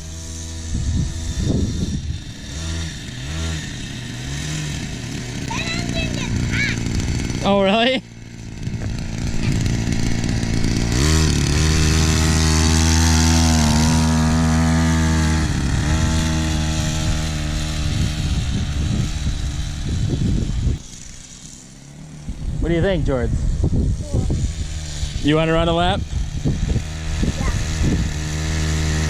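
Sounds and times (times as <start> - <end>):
mini bike engine revving: 0.0 - 29.0.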